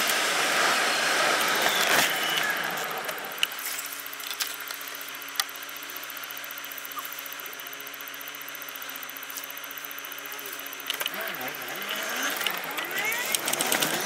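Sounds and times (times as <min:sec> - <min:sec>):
car engine idling: 0:00.2 - 0:14.0
sharp clicks: 0:04.2 - 0:05.6, 0:09.0 - 0:14.0.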